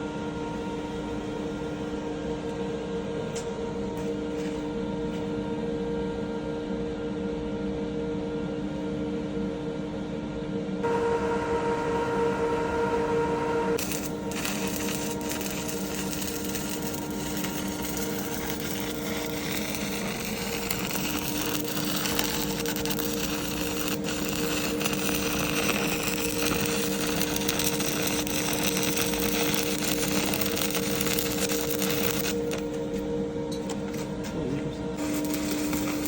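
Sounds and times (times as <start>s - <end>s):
steady low hum: 0.0s - 36.0s
welding arc crackling: 13.8s - 32.7s, 35.0s - 36.0s.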